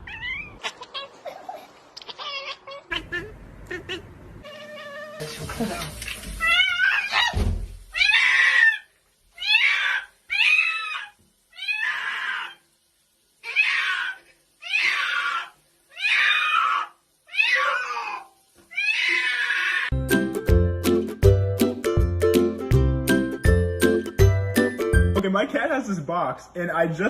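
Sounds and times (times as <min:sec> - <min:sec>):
cat meowing: 0:00.0 - 0:01.2, 0:02.0 - 0:05.3, 0:06.4 - 0:12.6, 0:13.4 - 0:19.9
music jingle: 0:20.0 - 0:25.4.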